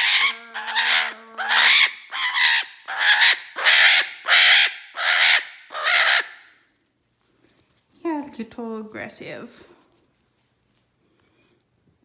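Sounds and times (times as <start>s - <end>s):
parrot squawking harshly: 0.0s - 6.5s.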